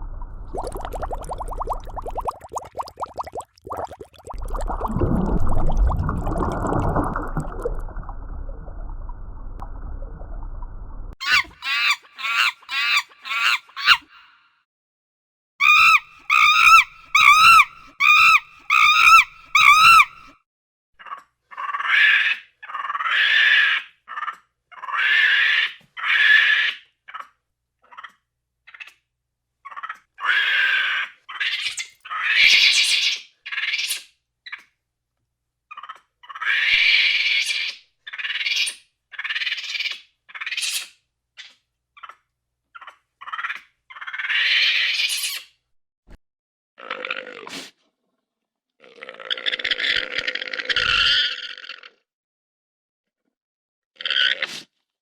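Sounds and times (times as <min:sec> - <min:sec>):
harsh animal screeching: 0:11.2 - 0:14.1, 0:15.6 - 0:20.3
short wavering animal cries: 0:11.2 - 0:14.1, 0:15.6 - 0:20.3.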